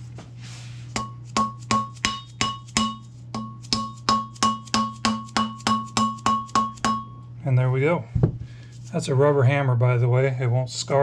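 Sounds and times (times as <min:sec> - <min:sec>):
rubber hammer tapping plastic pipe: 0:01.0 - 0:07.1.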